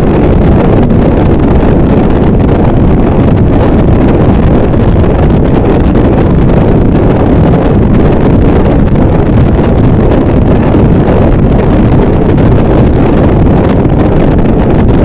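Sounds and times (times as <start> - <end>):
distorted static noise wall: 0.0 - 15.0.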